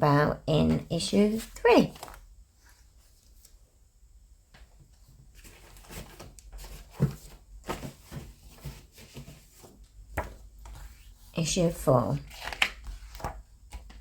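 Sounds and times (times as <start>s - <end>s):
magazines and packaging rustling: 1.3s - 3.6s, 5.1s - 14.0s.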